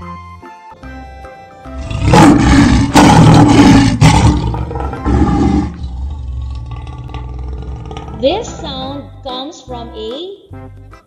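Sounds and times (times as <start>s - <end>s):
light background music: 0.0s - 5.8s, 8.1s - 11.0s
lion roaring: 1.8s - 8.9s.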